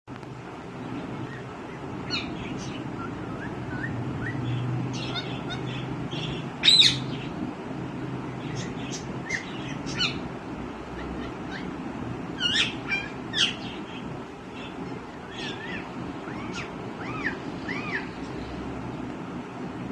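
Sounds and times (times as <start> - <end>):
steady low hum: 0.1 - 19.9
parakeet chirps and whistles: 1.2 - 7.3, 8.4 - 10.2, 12.4 - 13.8, 14.6 - 18.2.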